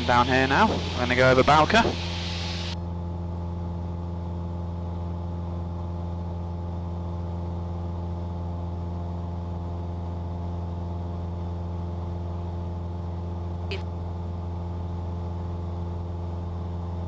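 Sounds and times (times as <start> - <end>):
high hiss: 0.0 - 2.8
propeller plane engine drone: 0.0 - 17.0.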